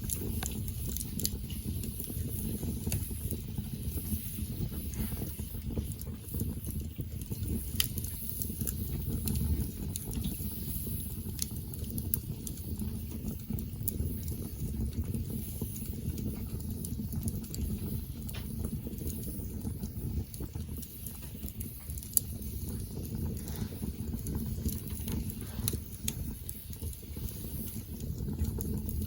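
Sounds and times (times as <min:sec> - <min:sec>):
campfire crackling and popping: 0:00.0 - 0:29.0.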